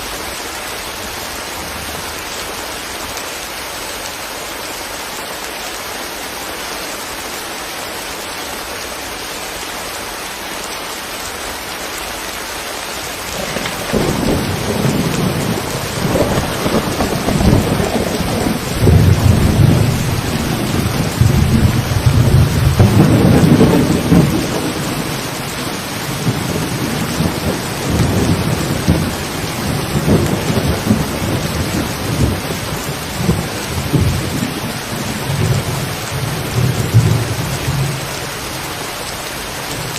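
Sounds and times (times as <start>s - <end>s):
rain falling: 0.0s - 39.9s
thunder rumbling: 13.3s - 38.2s.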